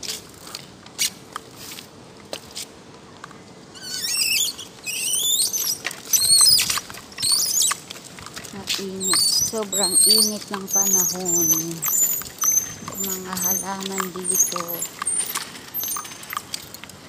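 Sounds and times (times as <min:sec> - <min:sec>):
small birds twittering: 0:03.8 - 0:07.8, 0:08.8 - 0:16.4.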